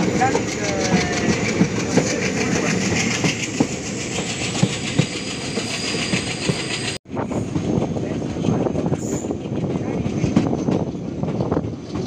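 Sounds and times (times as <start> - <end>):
wheels knocking on rails: 0.0 - 7.8
train coaches rumbling and rattling: 0.0 - 12.0.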